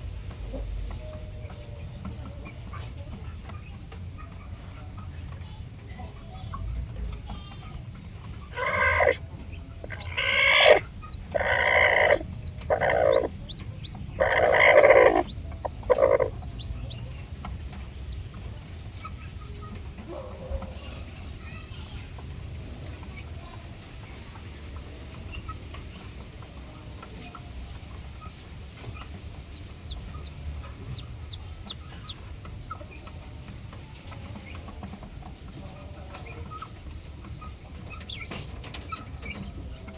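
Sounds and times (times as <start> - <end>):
chicken peeping: 0.2 - 39.9
chicken calling loudly: 8.5 - 9.2, 9.9 - 16.4.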